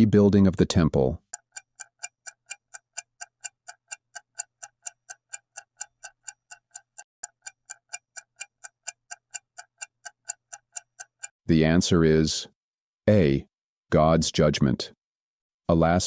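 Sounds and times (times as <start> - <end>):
clock ticking: 0.0 - 11.4.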